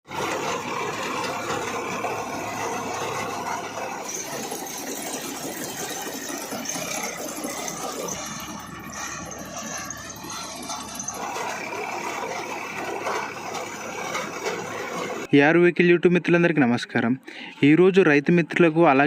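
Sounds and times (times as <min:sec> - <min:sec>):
tractor engine running: 0:00.0 - 0:15.3
metallic rattle of machinery: 0:00.1 - 0:15.3.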